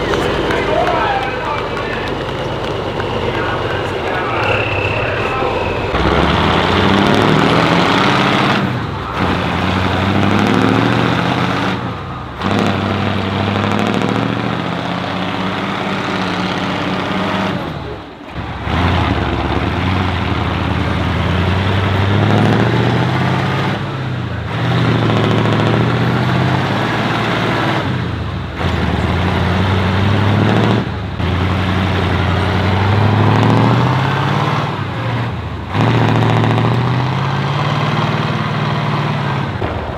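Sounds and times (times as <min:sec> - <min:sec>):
truck engines revving: 0:00.0 - 0:39.9.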